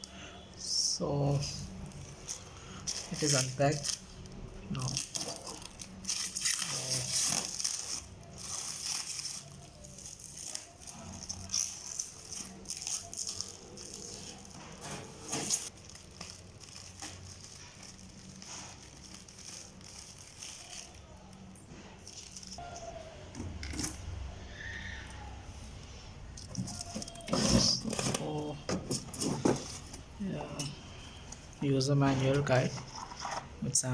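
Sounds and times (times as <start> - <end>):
packaging rustling and crinkling: 1.3 - 22.6, 26.4 - 30.3.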